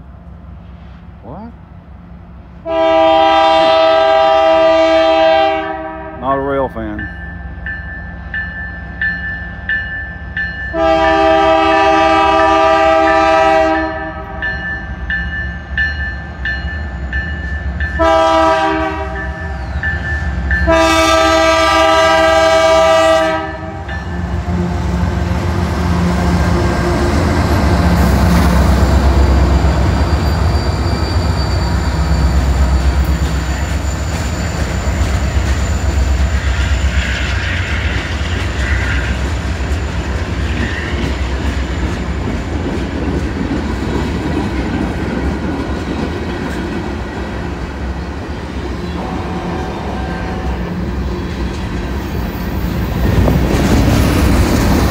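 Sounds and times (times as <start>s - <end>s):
diesel locomotive engines running: 0.0s - 54.9s
locomotive air horn blasts: 2.6s - 6.2s, 10.7s - 14.4s, 18.0s - 19.4s, 20.6s - 23.9s, 49.0s - 50.7s
train wheels rolling over rails: 23.9s - 54.9s.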